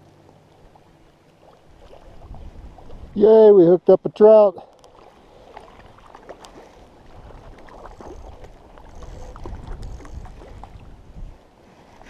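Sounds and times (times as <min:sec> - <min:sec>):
water splashing: 0:00.0 - 0:03.2, 0:04.7 - 0:11.0
wind rumbling on microphone: 0:01.6 - 0:03.3, 0:06.8 - 0:12.0.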